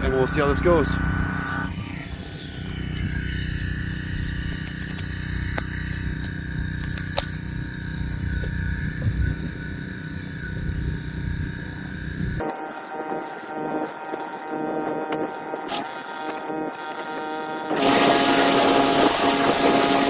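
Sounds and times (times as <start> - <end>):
pressure washer spraying: 17.7 - 20.0.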